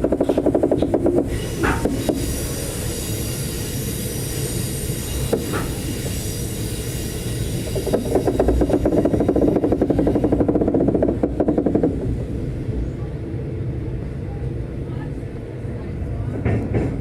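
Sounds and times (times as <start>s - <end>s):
train wheels rumbling on rails: 0.0s - 17.0s
wheel clicks: 7.7s - 12.0s.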